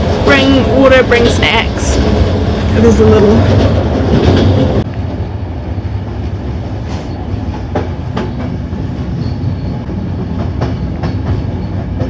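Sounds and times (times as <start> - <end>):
train carriage rumbling: 0.0 - 12.0.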